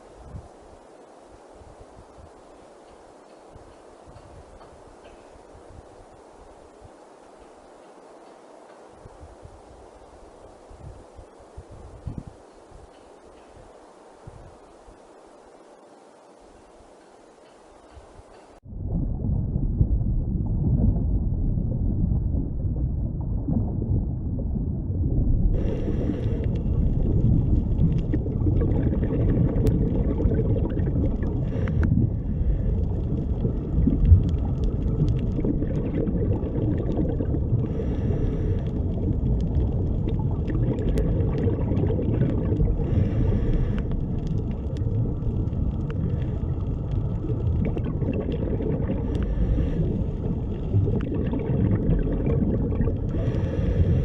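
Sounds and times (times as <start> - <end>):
faint crackling clicks: 2.0 - 9.2, 9.9 - 18.6, 25.6 - 54.0
underwater rumble: 18.0 - 54.0.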